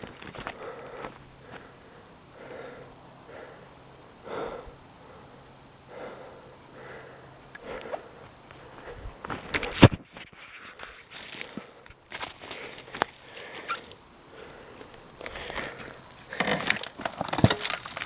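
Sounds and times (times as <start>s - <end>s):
footsteps in forest litter: 0.0s - 1.7s, 7.6s - 18.0s.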